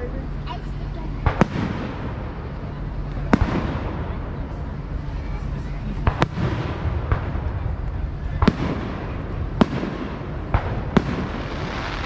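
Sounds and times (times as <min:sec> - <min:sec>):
low rumble: 0:00.0 - 0:12.0
fireworks bangs: 0:01.2 - 0:04.9, 0:05.9 - 0:12.0.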